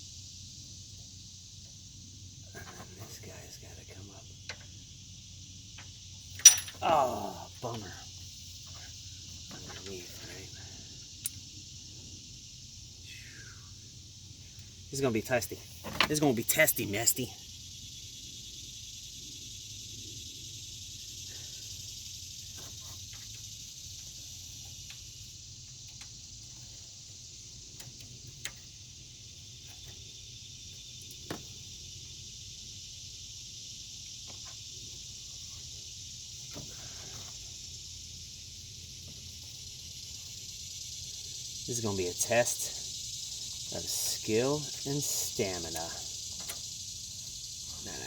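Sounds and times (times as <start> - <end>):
steady high hiss: 0.0 - 48.0
metallic clicks on pipe fittings: 5.8 - 6.8.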